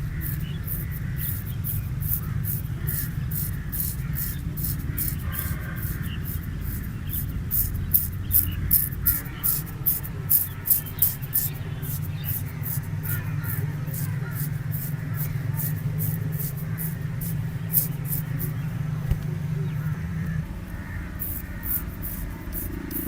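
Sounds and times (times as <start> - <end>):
razor scraping hair and skin: 0.0 - 19.2, 21.0 - 23.0
steady low hum: 0.0 - 23.0.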